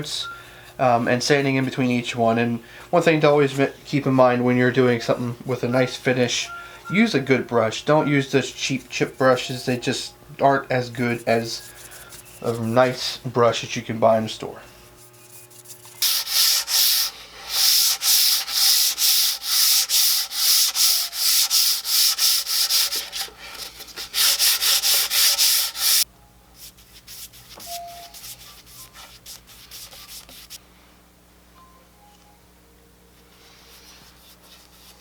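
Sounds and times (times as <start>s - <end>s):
hand rubbing wooden tabletop: 15.0s - 26.0s, 26.6s - 30.6s.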